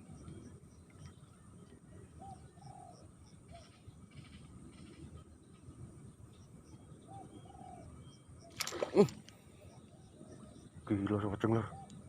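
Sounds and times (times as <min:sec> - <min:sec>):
dove cooing: 0:02.2 - 0:03.1, 0:07.1 - 0:07.9.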